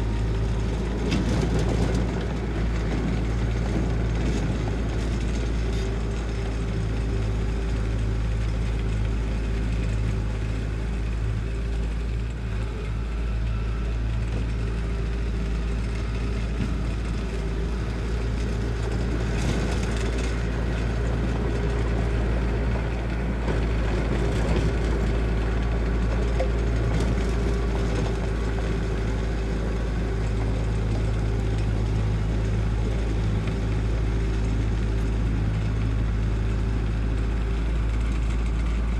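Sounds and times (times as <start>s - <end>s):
diesel engine droning: 0.0s - 38.9s.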